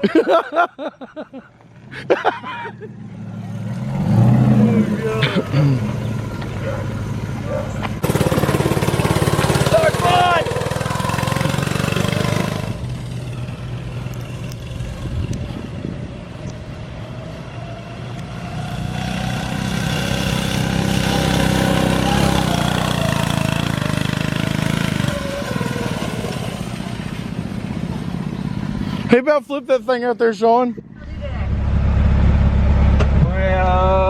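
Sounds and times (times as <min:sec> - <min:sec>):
small engine revving: 0:03.0 - 0:29.1.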